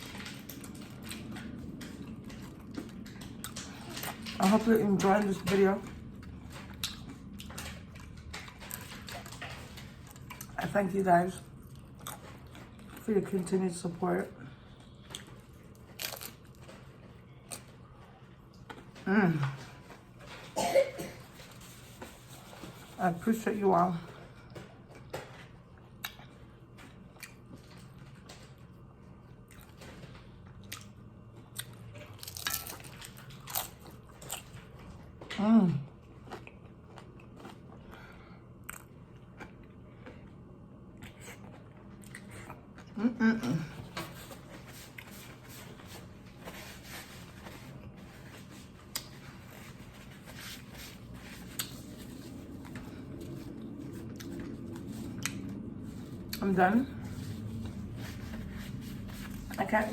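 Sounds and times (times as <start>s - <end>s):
person chewing crunchy food: 6.1s - 10.6s, 11.6s - 13.1s, 14.7s - 19.0s, 24.5s - 35.3s, 35.9s - 43.0s, 43.6s - 56.4s.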